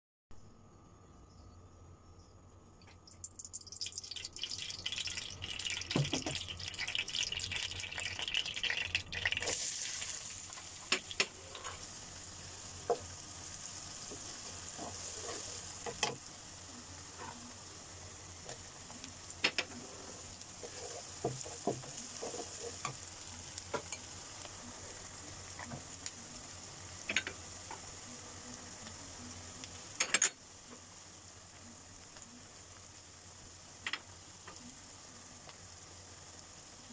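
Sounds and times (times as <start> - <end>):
cooking oil crackling: 2.7 - 36.9
onions sizzling in a pan: 3.0 - 36.9
wooden spatula scraping a pan: 14.2 - 16.1, 19.6 - 23.0.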